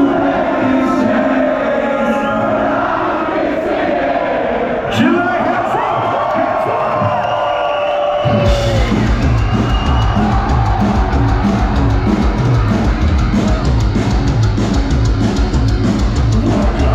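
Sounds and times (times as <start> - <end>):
crowd shouting: 0.0 - 14.8
live metal band playing: 8.2 - 16.9.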